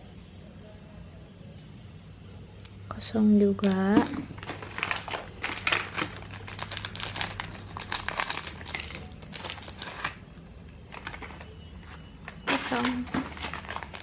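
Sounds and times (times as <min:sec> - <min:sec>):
plastic packets crinkling: 0:03.5 - 0:14.0.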